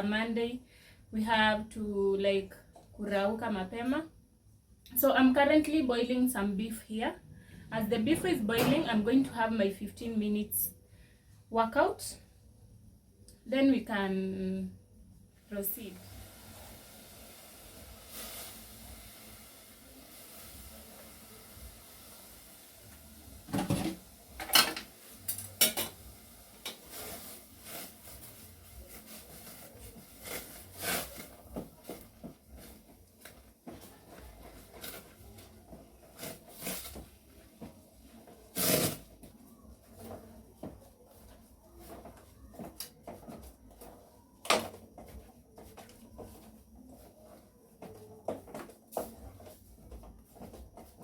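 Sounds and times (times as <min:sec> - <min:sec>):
kitchen things clattering: 0:23.5 - 0:27.2.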